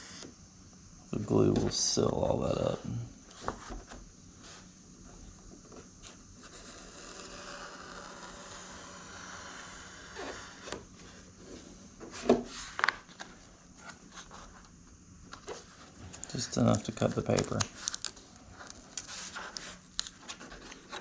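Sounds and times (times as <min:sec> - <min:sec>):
razor blade scraping foam mat: 0:06.4 - 0:10.8.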